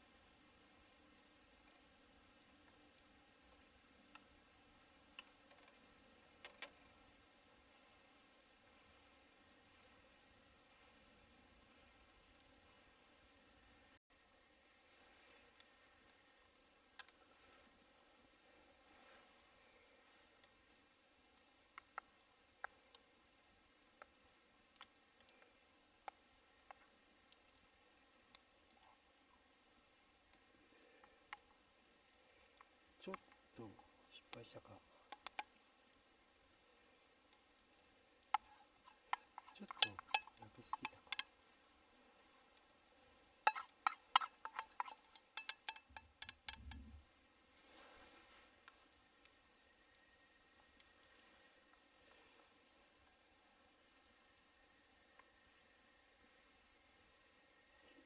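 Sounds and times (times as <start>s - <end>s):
cooking fire crackling: 0.0s - 58.0s
utensils clicking and tapping: 38.4s - 41.3s, 43.5s - 46.9s.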